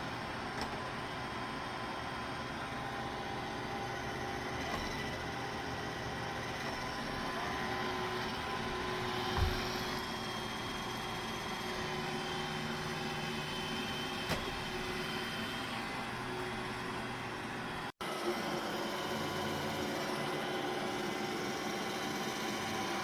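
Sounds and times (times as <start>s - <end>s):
dull thump: 9.2s - 9.9s.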